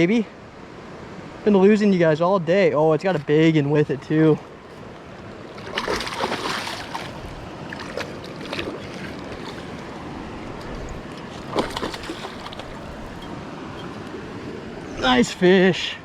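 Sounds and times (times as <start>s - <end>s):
river flowing: 0.0s - 16.0s
water splashing: 4.4s - 13.3s.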